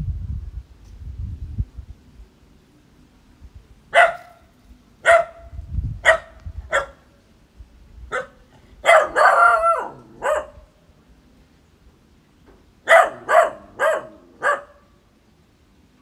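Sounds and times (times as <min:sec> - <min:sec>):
puppy barking: 0:03.9 - 0:07.1, 0:08.1 - 0:10.7, 0:12.8 - 0:14.9.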